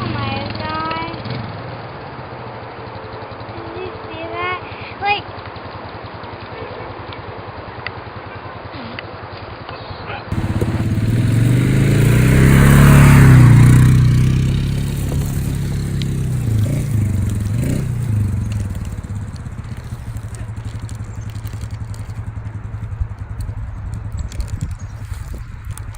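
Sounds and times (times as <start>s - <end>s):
engine running: 10.3s - 25.9s.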